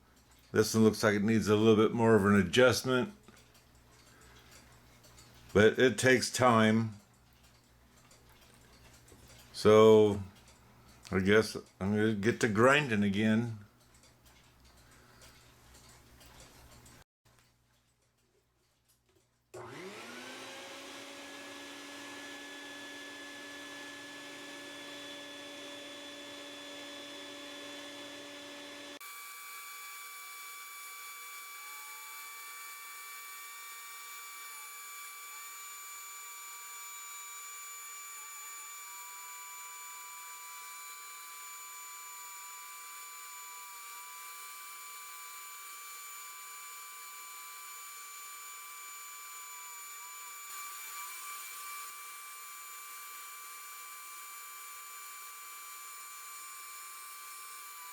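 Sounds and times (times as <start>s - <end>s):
rotary grinding tool whine: 19.6s - 57.9s.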